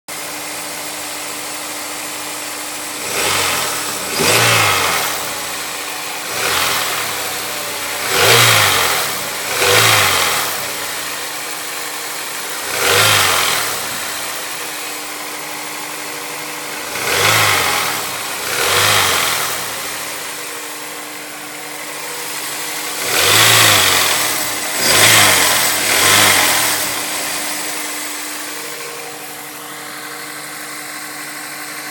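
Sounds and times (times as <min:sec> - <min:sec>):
car engine idling and revving: 0:00.1 - 0:31.9
strange engine sound: 0:00.1 - 0:31.9.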